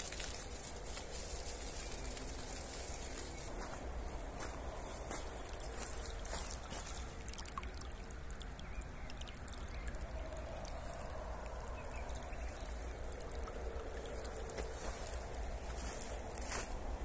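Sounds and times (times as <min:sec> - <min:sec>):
water pouring onto wet soil: 0:04.8 - 0:16.8.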